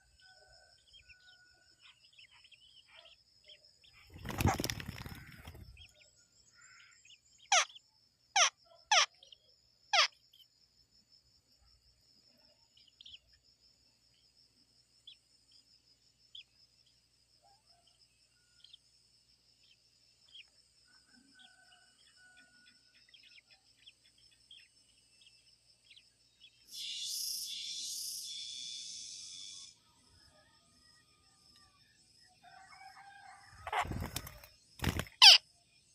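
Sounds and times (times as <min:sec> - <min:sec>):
insect trill: 0:00.0 - 0:35.9
faint bird chirps: 0:19.6 - 0:35.9.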